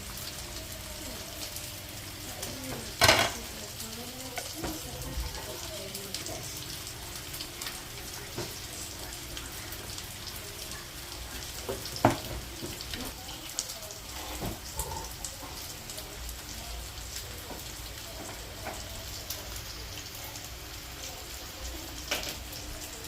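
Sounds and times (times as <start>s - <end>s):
food sizzling in a pan: 0.0s - 23.0s
loud knock on pan: 11.7s - 12.5s.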